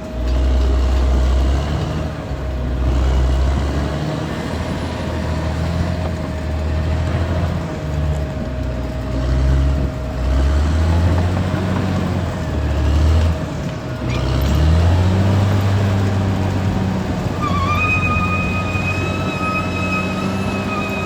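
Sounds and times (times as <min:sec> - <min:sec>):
bulldozer diesel engine running: 0:00.0 - 0:21.0
thin steady whine: 0:17.0 - 0:21.0.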